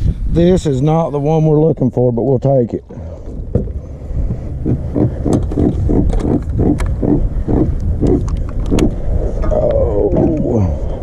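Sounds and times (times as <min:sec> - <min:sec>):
catfish croaking grunts: 0:04.6 - 0:10.8
catfish groans: 0:04.6 - 0:10.8.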